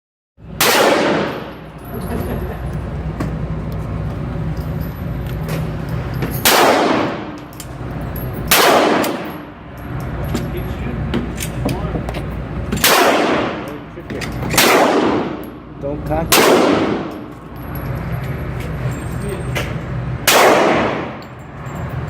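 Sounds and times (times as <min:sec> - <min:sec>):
gunshots: 0:00.6 - 0:01.6, 0:06.4 - 0:07.4, 0:08.5 - 0:09.4, 0:12.8 - 0:13.7, 0:14.5 - 0:15.4, 0:16.3 - 0:17.2, 0:20.2 - 0:21.2.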